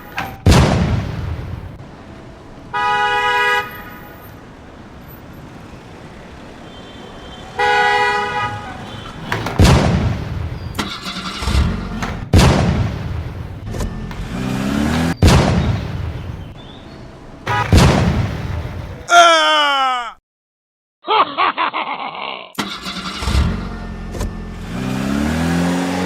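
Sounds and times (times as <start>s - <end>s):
loud sudden bangs: 0.0s - 1.8s, 8.5s - 16.6s, 17.4s - 19.1s
car horn honking: 2.2s - 9.6s, 13.7s - 18.2s.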